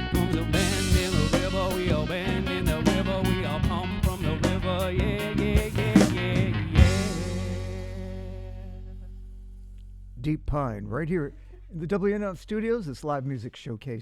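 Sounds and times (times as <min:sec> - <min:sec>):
live band playing: 0:00.0 - 0:08.9.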